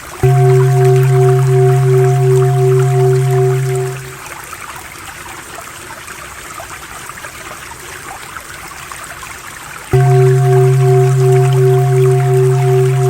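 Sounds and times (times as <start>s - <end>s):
water trickling: 0.0s - 13.0s
low drone tone: 0.1s - 4.2s, 10.0s - 13.0s
pulsing higher tone: 0.1s - 4.2s, 10.0s - 13.0s.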